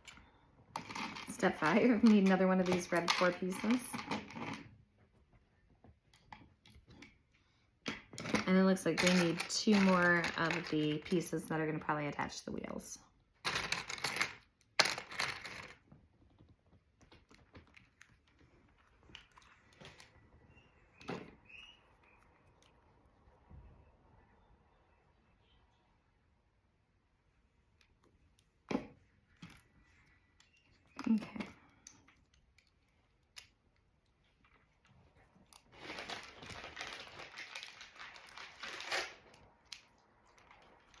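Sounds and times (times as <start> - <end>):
plastic bricks rattling: 8.1 - 11.0, 13.4 - 15.8
plastic crinkling and rustling: 8.2 - 11.2, 34.2 - 41.0.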